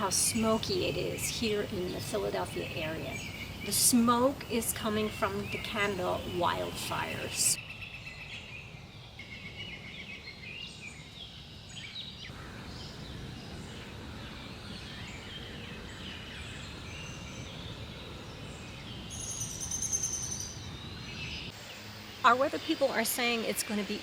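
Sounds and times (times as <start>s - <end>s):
songbirds chirping: 0.0s - 24.0s
high-pitched bird trill: 19.1s - 20.6s.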